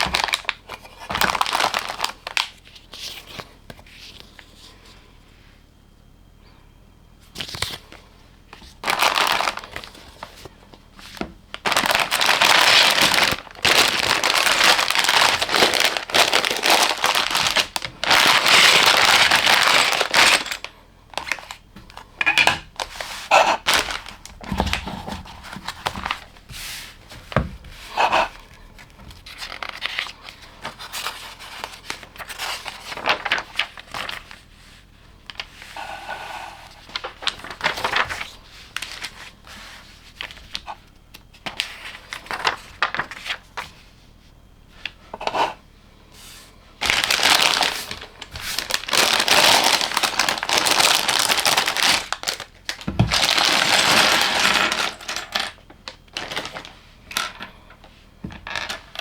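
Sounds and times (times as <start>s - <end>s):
plastic tearing: 0.0s - 2.6s, 8.6s - 10.5s, 11.1s - 21.6s, 22.3s - 26.4s, 46.8s - 56.7s
plastic bags crinkling: 0.0s - 3.1s, 7.4s - 34.5s, 36.8s - 39.4s, 46.8s - 57.5s.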